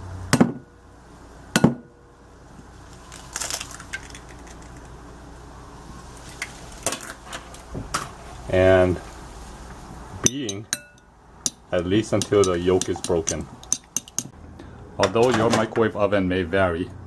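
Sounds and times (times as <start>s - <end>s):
eggshell clicks and taps: 12.2s - 14.3s.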